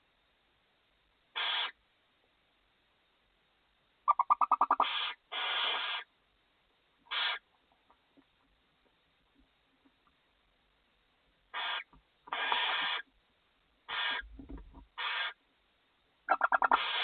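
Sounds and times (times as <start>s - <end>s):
owls hissing: 1.4s - 1.8s, 4.1s - 6.1s, 7.1s - 7.4s, 11.5s - 13.1s, 13.9s - 14.4s, 15.0s - 15.4s, 16.3s - 17.0s.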